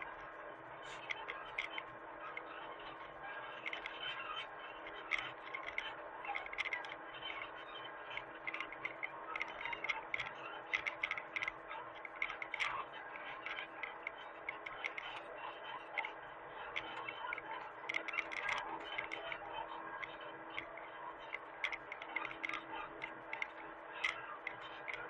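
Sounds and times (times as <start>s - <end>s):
sharp clicks and ticks: 4.9s - 7.4s, 8.2s - 15.3s, 15.9s - 25.0s.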